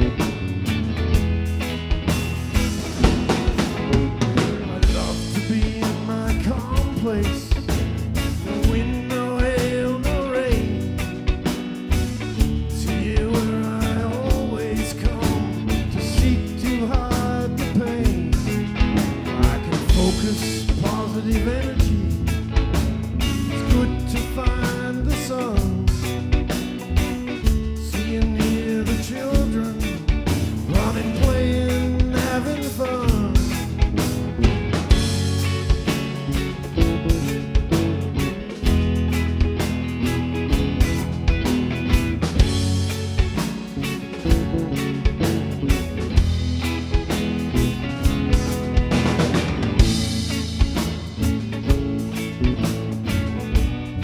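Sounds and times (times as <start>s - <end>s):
sliding lead melody: 0.0s - 6.1s, 29.7s - 54.0s
bass and guitar: 0.0s - 54.0s
rock band playing: 0.0s - 54.0s
drum beat: 33.1s - 53.9s.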